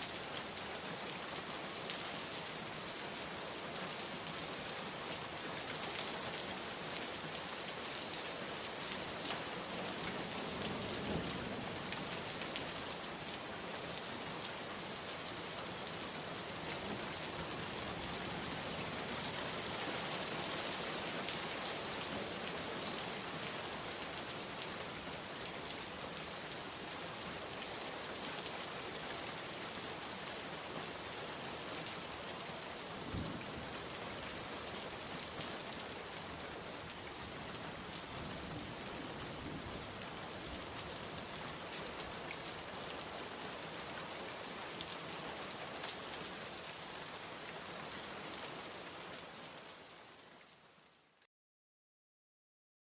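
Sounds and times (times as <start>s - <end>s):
steady rain falling: 0.0s - 51.3s.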